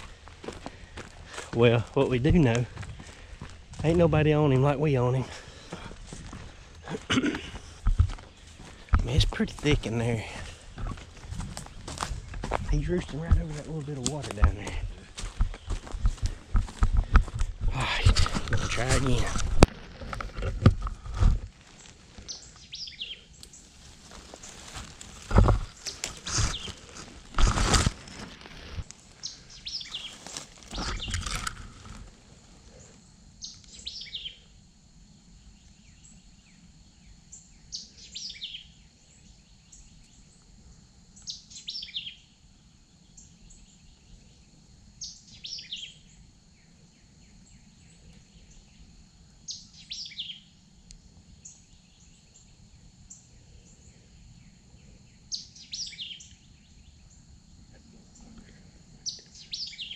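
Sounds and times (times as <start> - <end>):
songbird singing: 0.0 - 20.2, 21.6 - 59.9
rustling: 23.4 - 29.2, 29.9 - 32.6.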